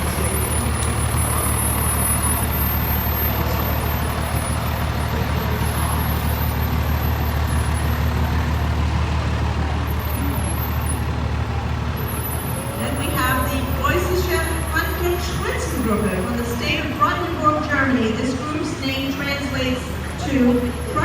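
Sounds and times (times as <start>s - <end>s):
large vehicle engine droning: 0.0s - 21.0s.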